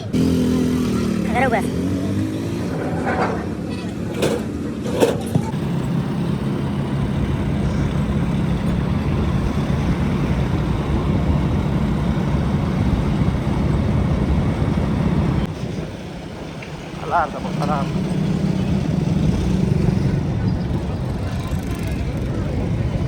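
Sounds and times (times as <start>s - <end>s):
machine droning: 0.1s - 15.5s.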